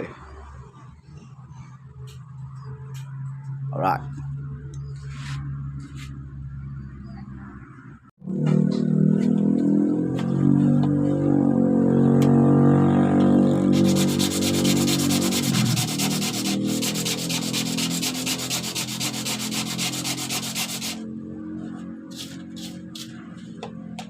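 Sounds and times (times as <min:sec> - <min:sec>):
sandpaper scratching: 0:05.0 - 0:06.2, 0:13.7 - 0:21.0, 0:22.1 - 0:23.6.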